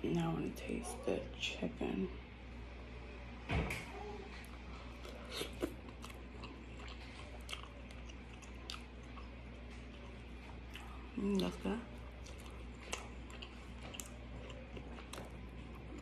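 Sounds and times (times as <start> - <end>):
wet chewing: 4.4 - 16.0.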